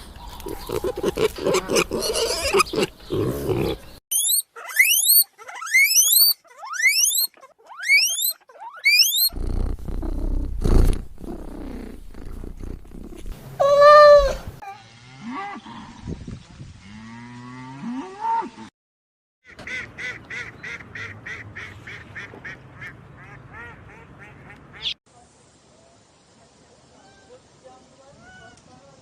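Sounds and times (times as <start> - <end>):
low animal calls: 0.2 - 10.2
loud drawn-out animal call: 0.7 - 9.4
short rising animal squeaks: 0.7 - 9.4.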